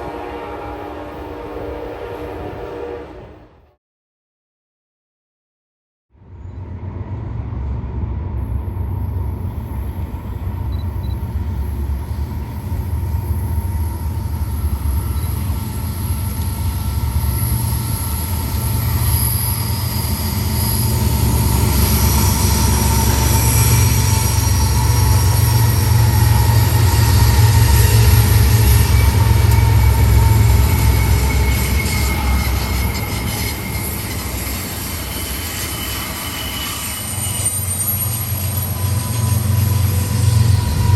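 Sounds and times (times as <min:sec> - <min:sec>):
railroad cars rumbling past: 0:00.0 - 0:03.8, 0:06.1 - 0:40.9
steel wheels squealing: 0:09.0 - 0:40.9.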